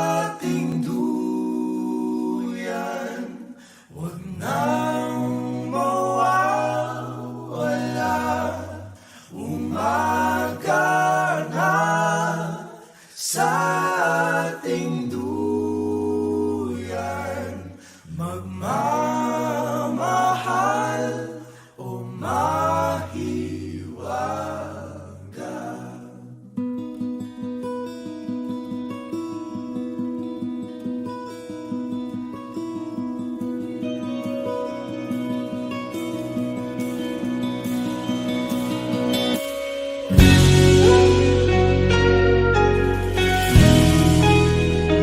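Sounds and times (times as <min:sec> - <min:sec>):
a cappella singing: 0:00.0 - 0:26.5.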